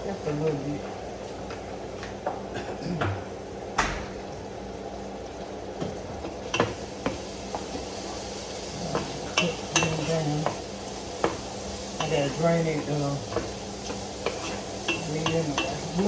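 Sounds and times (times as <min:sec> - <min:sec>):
meat sizzling in a pan: 0:05.0 - 0:16.0
utensil scraping a pan: 0:13.3 - 0:15.8.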